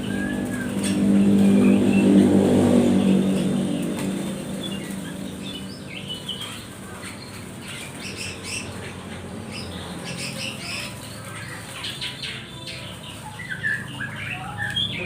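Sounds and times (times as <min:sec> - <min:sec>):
birds fluttering wings: 0:00.0 - 0:08.6
bird chirps: 0:00.0 - 0:15.0.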